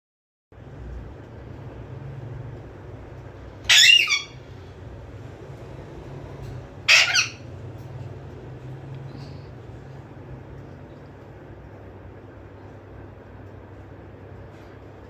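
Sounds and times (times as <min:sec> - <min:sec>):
parrot calling loudly: 0:03.6 - 0:04.4, 0:06.8 - 0:07.5.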